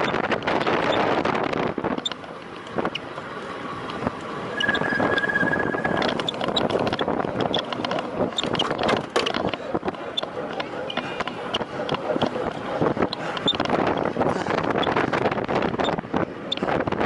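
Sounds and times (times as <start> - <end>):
wind rushing over microphone: 0.0 - 3.1, 4.0 - 10.1, 11.5 - 17.0
brake squeal: 4.4 - 7.7.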